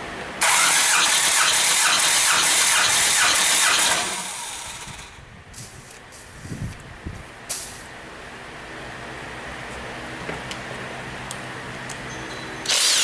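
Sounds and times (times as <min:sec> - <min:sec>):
diesel engine cranking on starter: 0:00.4 - 0:05.2, 0:12.6 - 0:13.0.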